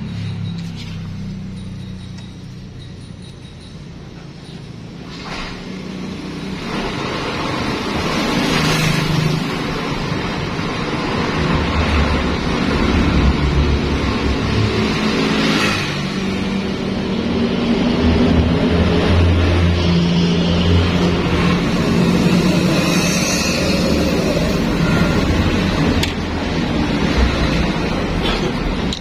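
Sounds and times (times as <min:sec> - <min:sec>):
vehicle engine running: 0:00.0 - 0:05.2.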